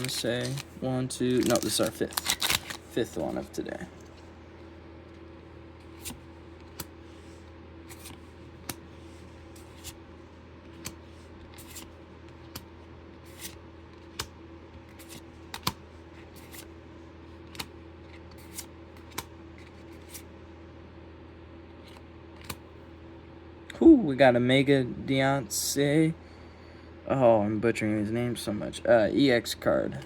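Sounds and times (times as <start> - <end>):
cards clicking and rustling: 0.0 - 3.4, 7.9 - 8.8, 10.7 - 16.7, 17.4 - 20.3, 21.9 - 22.6
computer fans humming: 0.0 - 30.0.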